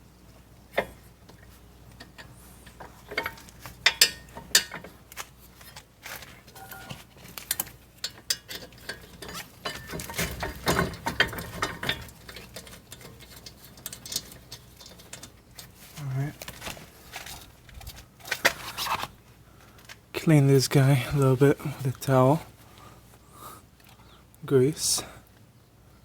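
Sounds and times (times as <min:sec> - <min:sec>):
metal parts clinking and rattling: 0:02.0 - 0:19.1.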